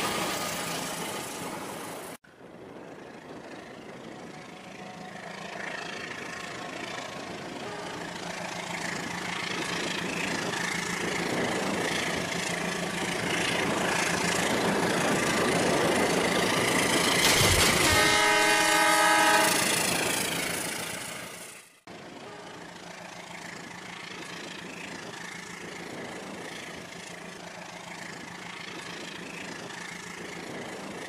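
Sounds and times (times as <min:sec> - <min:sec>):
train running: 0:00.0 - 0:31.0
train horn: 0:04.2 - 0:08.9, 0:17.4 - 0:20.3, 0:22.1 - 0:23.1.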